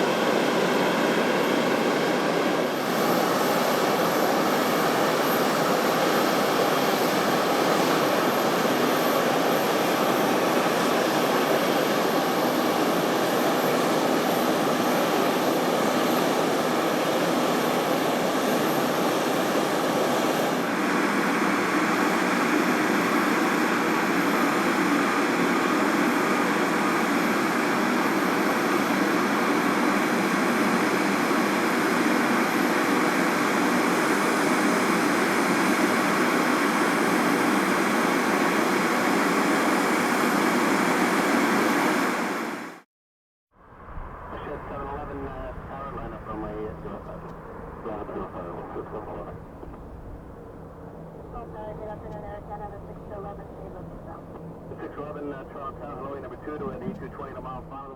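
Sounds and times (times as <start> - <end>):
jet engines roaring: 0.0 - 42.8, 43.7 - 57.9.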